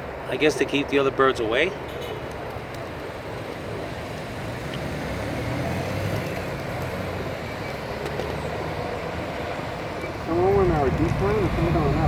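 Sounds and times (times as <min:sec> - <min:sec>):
road traffic noise: 0:00.0 - 0:12.0
vehicle passing: 0:03.2 - 0:12.0.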